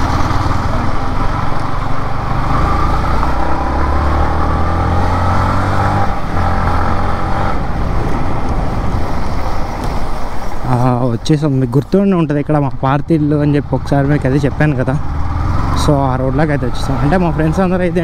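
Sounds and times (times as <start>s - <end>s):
motorcycle engine running: 0.0s - 5.2s.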